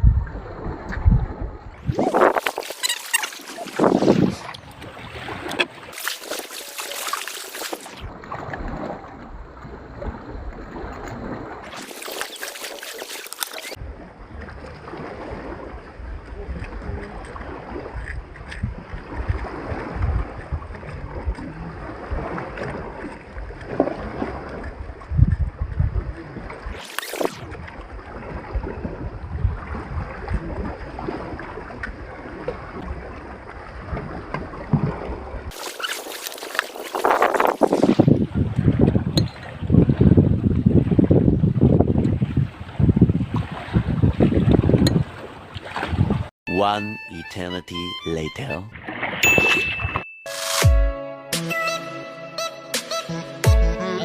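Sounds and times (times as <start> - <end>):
wind buffeting microphone: 0.0 - 3.0, 3.6 - 5.9, 13.8 - 26.8, 27.4 - 35.6, 36.7 - 46.3.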